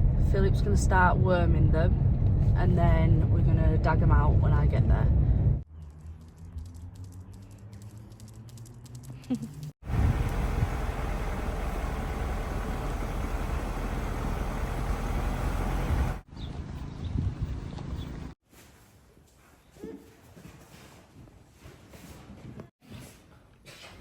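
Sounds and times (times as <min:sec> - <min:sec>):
vehicle engine running: 0:09.8 - 0:18.4.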